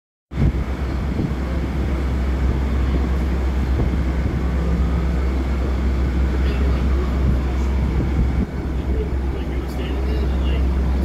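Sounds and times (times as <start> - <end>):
idling railway equipment rumble: 0.3 - 11.0.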